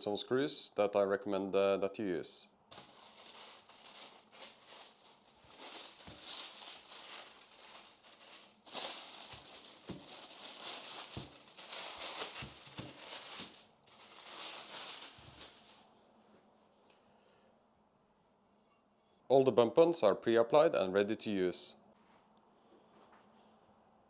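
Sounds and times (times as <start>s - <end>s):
plastic bag crinkling: 2.7s - 15.9s.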